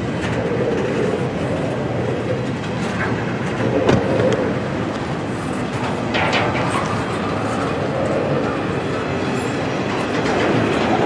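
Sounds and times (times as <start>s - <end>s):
train wheels rumbling on rail: 0.0s - 11.0s
train clank: 2.3s - 11.0s.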